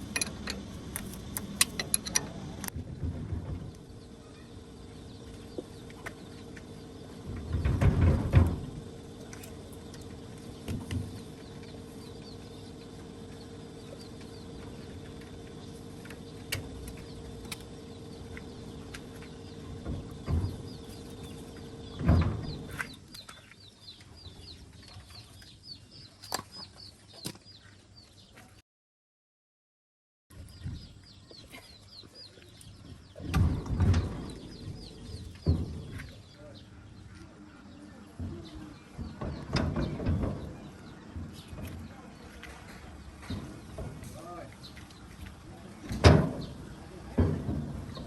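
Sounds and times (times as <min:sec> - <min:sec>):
birds chirping: 0:00.0 - 0:02.8, 0:03.4 - 0:28.5, 0:30.4 - 0:48.0
heavy mechanical thumps and clunks: 0:00.0 - 0:23.0, 0:33.1 - 0:36.3, 0:38.2 - 0:48.0
steady hum: 0:00.0 - 0:23.0.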